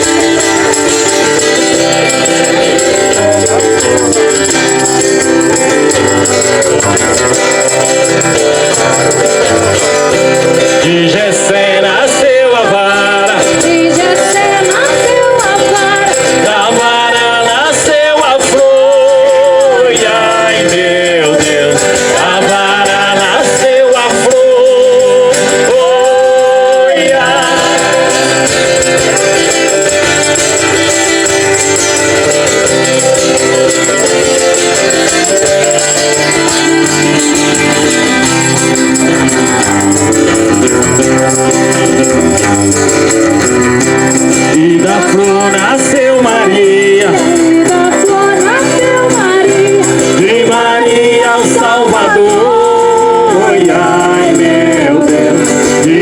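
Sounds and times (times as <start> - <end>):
person singing folk song: 0.0 - 56.0
hand shaker: 13.6 - 56.0.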